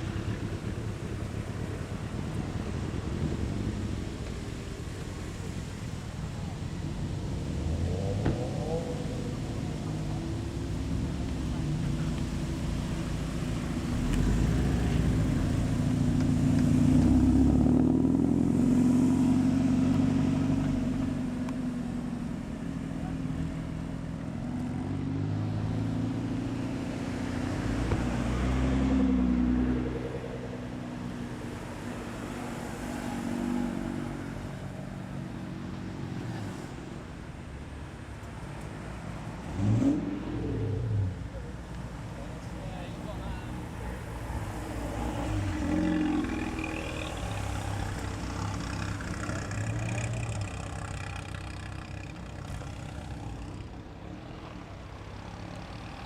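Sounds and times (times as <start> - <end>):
cars driving past: 0.0 - 56.0
engine revving: 39.5 - 41.4, 44.0 - 56.0.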